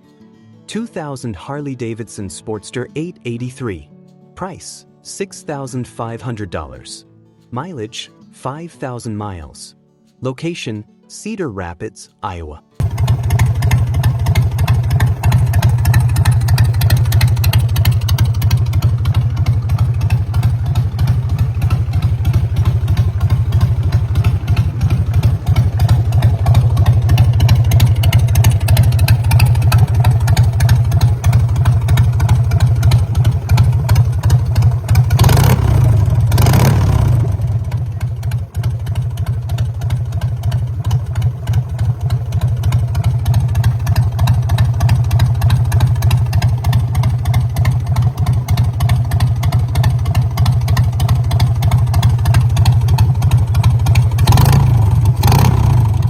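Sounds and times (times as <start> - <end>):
motorcycle engine idling: 12.8 - 56.0
motorcycle engine revving: 12.8 - 56.0.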